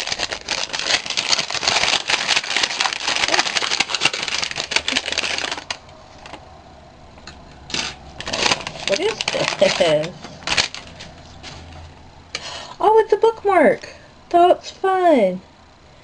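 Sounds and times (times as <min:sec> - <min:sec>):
packaging crinkling and rustling: 0:00.0 - 0:06.4, 0:07.3 - 0:12.0.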